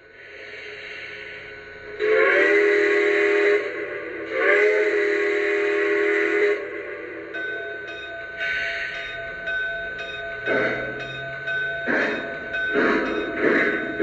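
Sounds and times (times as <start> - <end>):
steam whistle blasts: 2.0 - 7.1.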